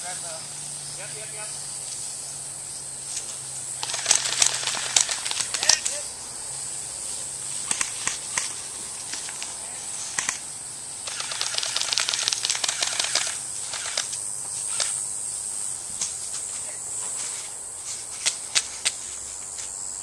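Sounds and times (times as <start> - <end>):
steady high hiss: 0.0 - 20.0
airsoft guns firing: 3.8 - 5.8, 11.0 - 14.1.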